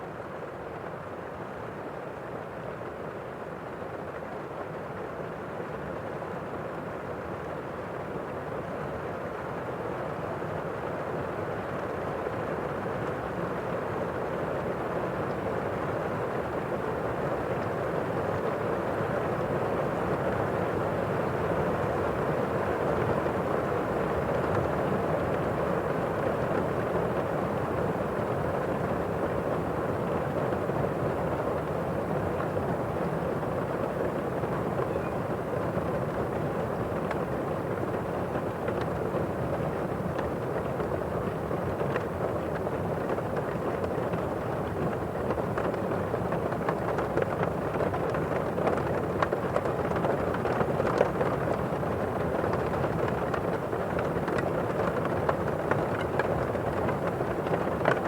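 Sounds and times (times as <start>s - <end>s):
heavy rain heard from indoors: 22.7s - 58.0s.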